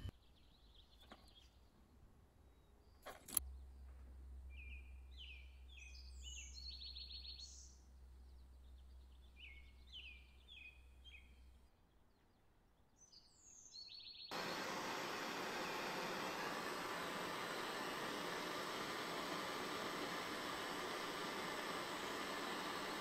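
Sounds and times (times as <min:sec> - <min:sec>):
songbird singing: 0:04.5 - 0:23.0
loud steady hiss: 0:14.3 - 0:23.0
low hum: 0:14.3 - 0:23.0.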